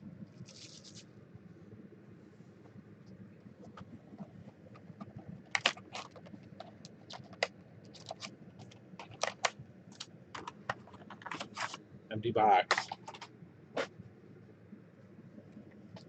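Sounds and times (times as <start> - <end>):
plastic wrap crinkling: 5.1 - 11.8.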